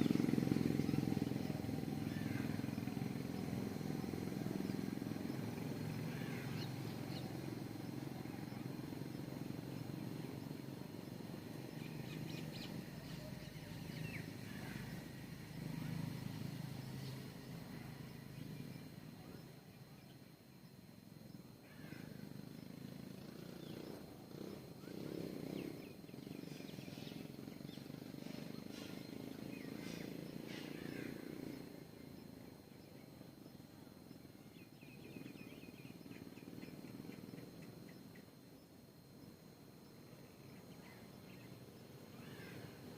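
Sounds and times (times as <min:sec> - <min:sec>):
low outdoor rumble: 0:00.0 - 0:42.9
small birds chirping: 0:00.0 - 0:42.9.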